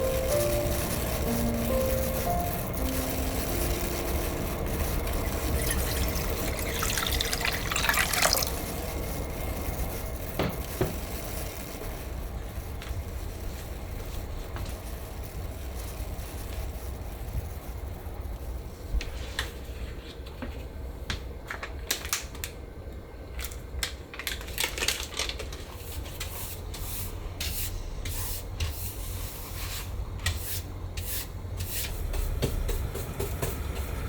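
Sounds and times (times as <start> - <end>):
water running and splashing: 5.5 - 8.8.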